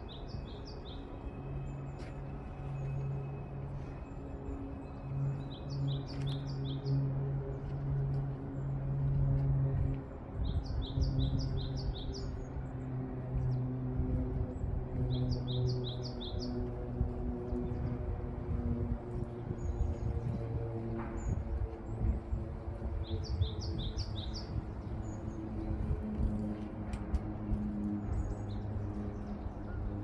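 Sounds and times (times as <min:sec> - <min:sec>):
wind rumble: 0:09.8 - 0:30.0
songbird singing: 0:23.0 - 0:25.3.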